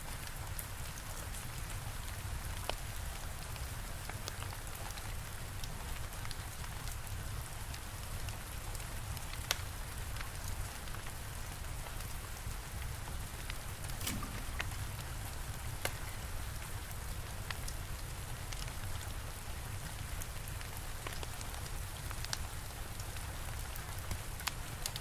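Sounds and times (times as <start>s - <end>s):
steady rain: 0.0s - 25.0s
wood fire crackling: 12.5s - 25.0s.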